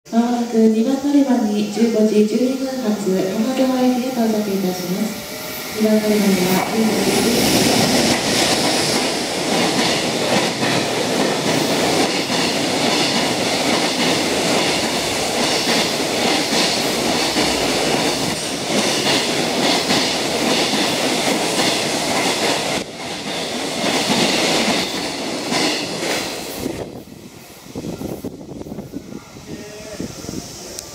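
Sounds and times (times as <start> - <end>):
steel wheels rushing on rail: 0.1 - 30.9.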